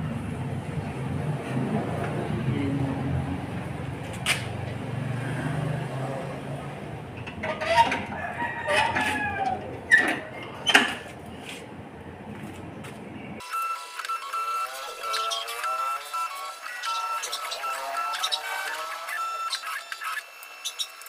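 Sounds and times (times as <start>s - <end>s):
chickens calling: 7.2s - 11.6s, 14.7s - 21.0s
rooster calls: 7.5s - 10.2s.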